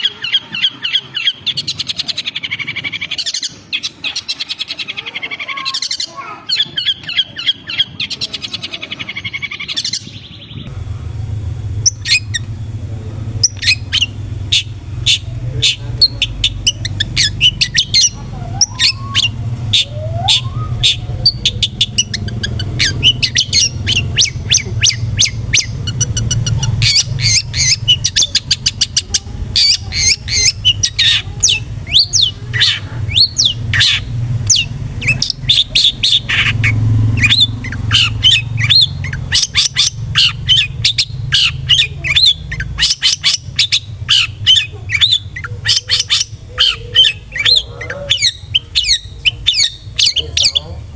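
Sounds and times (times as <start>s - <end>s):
harsh bird chirps: 0.0s - 10.8s, 11.6s - 50.9s
steady low hum: 0.0s - 50.9s.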